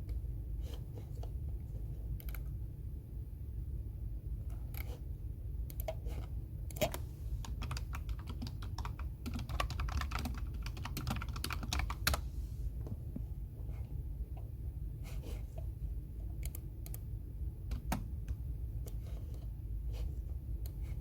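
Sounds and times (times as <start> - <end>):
low background hum: 0.0 - 21.0
typing on computer keyboard: 6.7 - 12.2.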